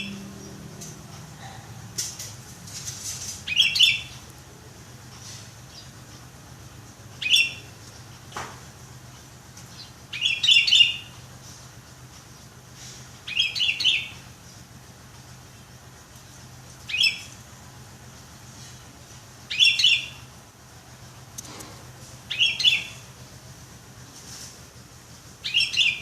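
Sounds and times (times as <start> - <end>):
bird singing clear notes: 3.5 - 4.3, 7.2 - 7.7, 9.7 - 11.2, 13.3 - 14.6, 16.9 - 17.4, 19.5 - 20.3, 22.3 - 23.1, 25.4 - 26.0.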